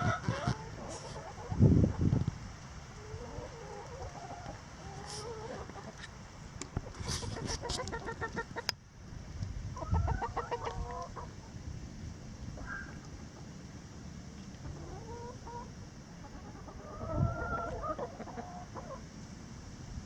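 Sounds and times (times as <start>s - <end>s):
hens clucking: 0.0s - 2.2s, 3.0s - 8.8s, 9.8s - 11.6s, 14.6s - 19.1s.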